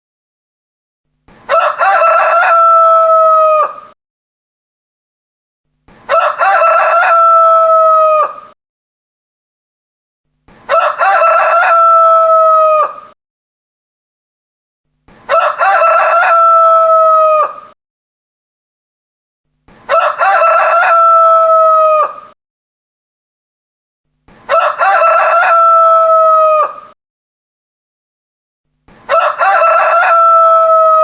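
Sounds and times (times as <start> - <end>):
rooster crowing: 1.5 - 4.0, 6.1 - 8.6, 10.7 - 13.2, 15.3 - 17.8, 19.9 - 22.4, 24.5 - 27.0, 29.1 - 31.0.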